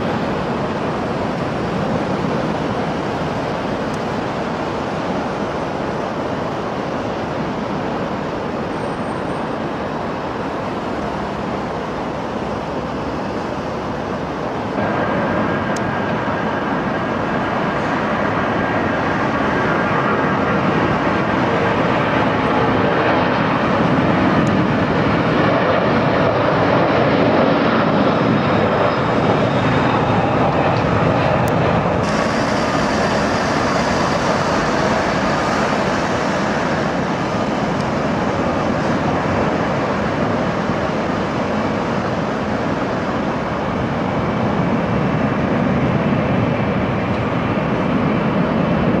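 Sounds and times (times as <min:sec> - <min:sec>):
airplane engines at takeoff power: 0:00.0 - 0:49.0
sharp hiss: 0:32.0 - 0:37.2.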